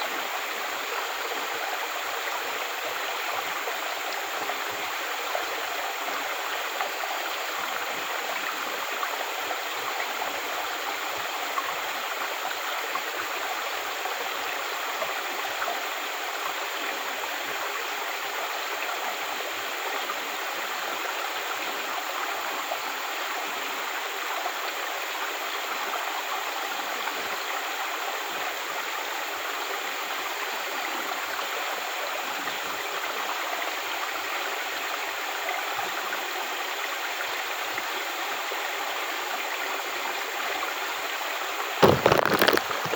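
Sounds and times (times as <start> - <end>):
stream water flowing: 0.0 - 42.9.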